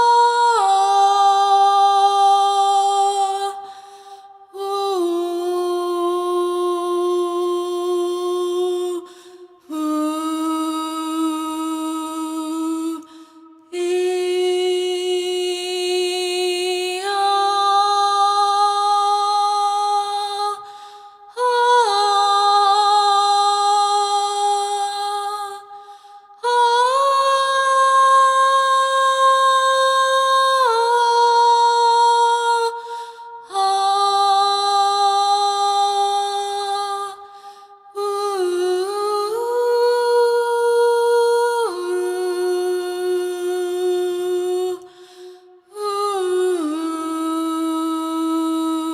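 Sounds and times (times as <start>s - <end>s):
person breathing: 3.6s - 4.4s, 9.0s - 9.6s, 13.0s - 13.6s, 20.6s - 21.3s, 25.8s - 26.4s, 32.8s - 33.4s, 37.3s - 37.8s, 44.9s - 45.7s.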